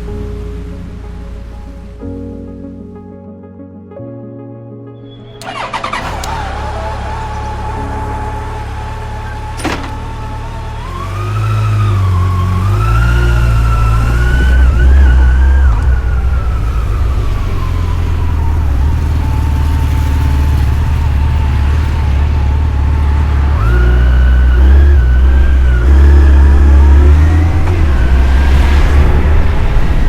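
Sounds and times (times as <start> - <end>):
wind rush: 27.0 - 30.0.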